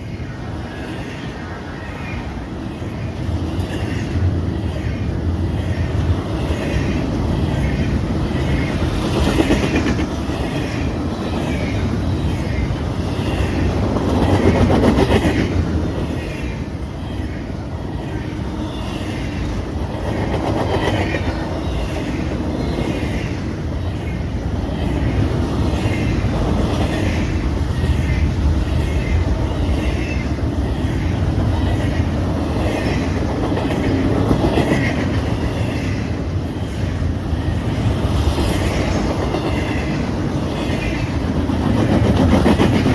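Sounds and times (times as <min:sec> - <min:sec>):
freight train rumbling past: 0:00.0 - 0:42.9
train wheels clacking over rail joints: 0:38.3 - 0:42.9.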